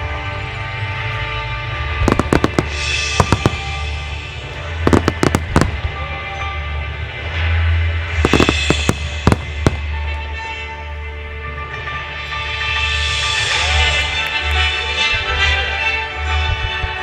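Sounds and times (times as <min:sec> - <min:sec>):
music with sustained tones: 0:00.0 - 0:17.0
fireworks bursting with sharp cracks: 0:01.7 - 0:13.6.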